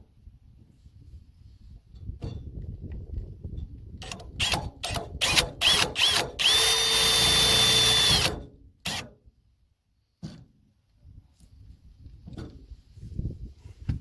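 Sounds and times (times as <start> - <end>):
power drill driving screws: 4.0 - 9.1.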